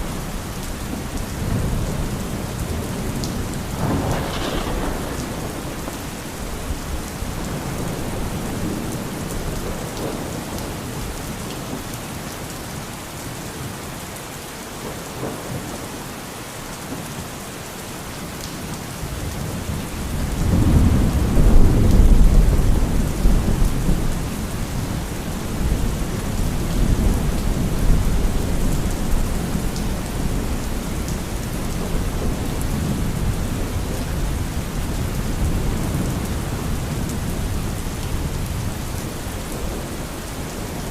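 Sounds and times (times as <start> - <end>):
thunder rumbling: 0.0 - 10.8, 19.4 - 40.9
steady rain falling: 0.0 - 40.9.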